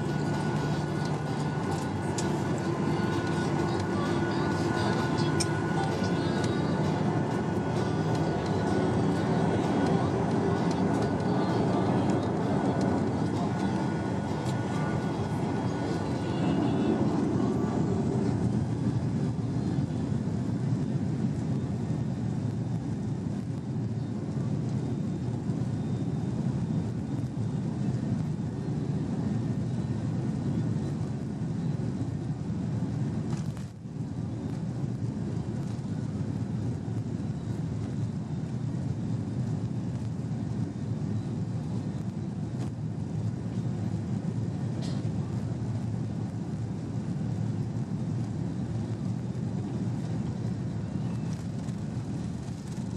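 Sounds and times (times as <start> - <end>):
airplane cabin engine rumble: 0.0 - 52.9.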